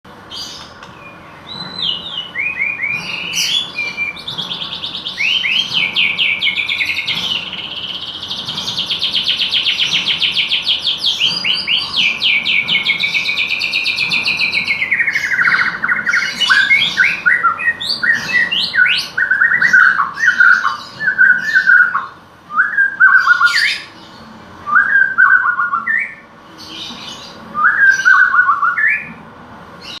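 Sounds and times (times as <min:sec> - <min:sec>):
songbird singing trills: 0:00.4 - 0:29.2.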